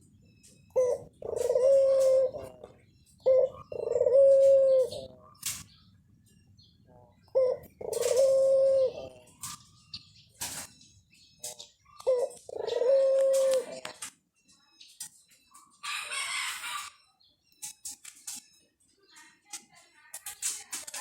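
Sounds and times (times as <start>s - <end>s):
doves cooing: 0.5s - 5.6s, 7.1s - 9.8s, 11.4s - 14.1s.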